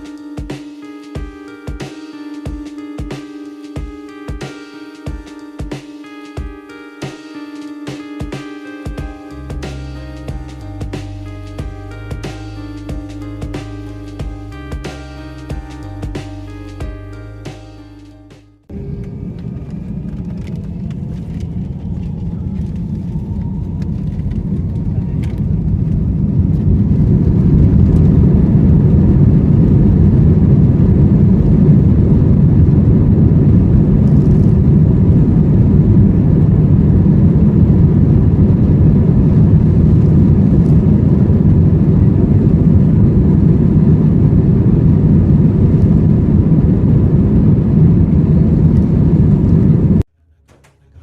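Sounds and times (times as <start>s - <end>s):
jet engines rumbling at take-off: 18.7s - 50.0s.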